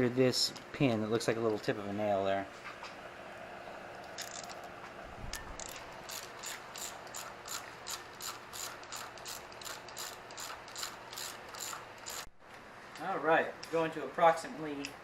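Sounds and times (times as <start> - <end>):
hand ratchet clicking: 5.6 - 12.3.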